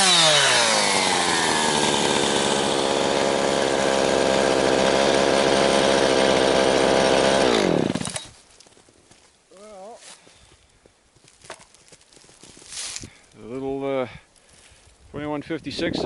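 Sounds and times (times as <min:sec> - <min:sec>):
chainsaw engine idling: 0:00.0 - 0:08.3
chainsaw engine shutting off: 0:00.0 - 0:08.4.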